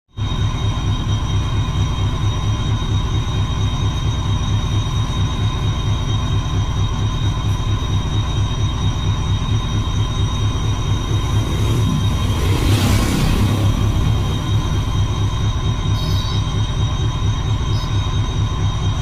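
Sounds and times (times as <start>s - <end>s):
locomotive throbbing rumble: 0.2s - 19.0s
high whining tones: 9.4s - 16.4s.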